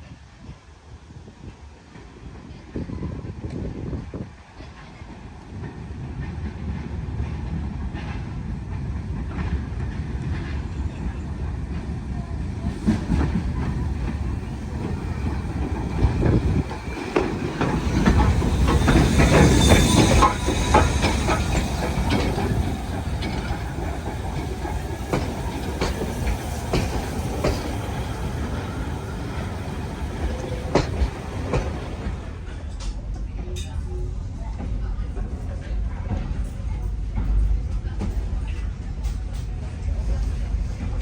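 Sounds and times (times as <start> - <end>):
train rumbling along track: 0.0 - 41.0
wheels clattering over rail joints: 11.7 - 33.0.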